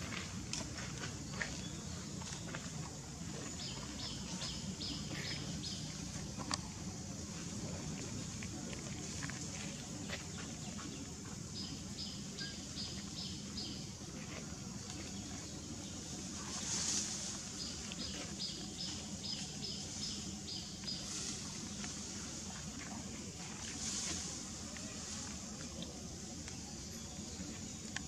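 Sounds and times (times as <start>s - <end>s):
low outdoor rumble: 0.0s - 28.0s
bird chirping: 11.6s - 13.9s.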